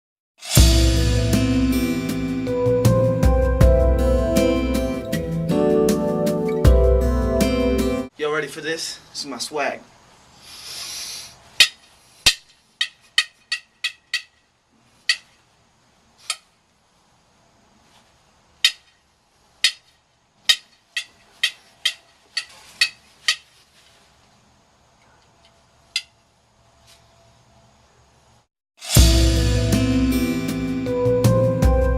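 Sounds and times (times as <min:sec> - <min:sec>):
short hiss: 0:10.4 - 0:12.3.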